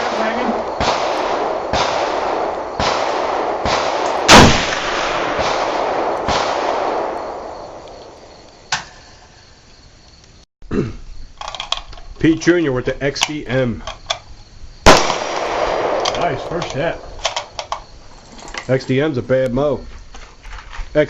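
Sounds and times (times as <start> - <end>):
gunshots: 0.0 - 9.0, 14.8 - 17.8
rushing echo: 0.0 - 9.1, 14.9 - 18.0.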